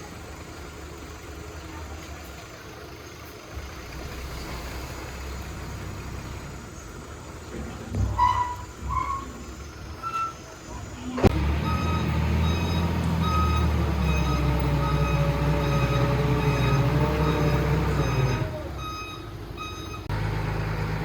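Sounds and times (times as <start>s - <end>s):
diesel machinery engine running: 0.0s - 21.0s
reversing alarm beeping: 11.2s - 20.2s.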